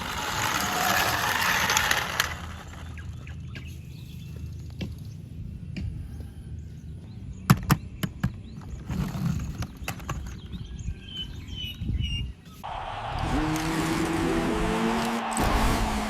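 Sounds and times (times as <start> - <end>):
bird chirps: 2.6 - 9.0, 9.6 - 12.7.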